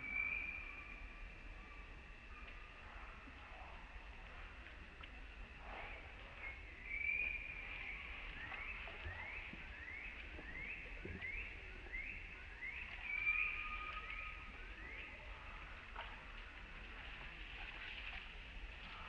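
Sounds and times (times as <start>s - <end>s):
bird chirping: 6.3s - 15.5s.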